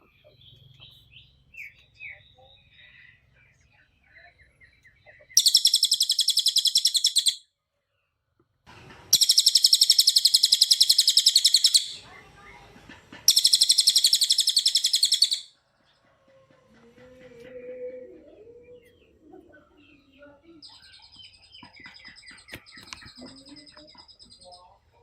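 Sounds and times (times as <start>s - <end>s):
bird singing rapid high notes: 4.4s - 7.4s, 9.1s - 12.1s, 13.3s - 15.5s.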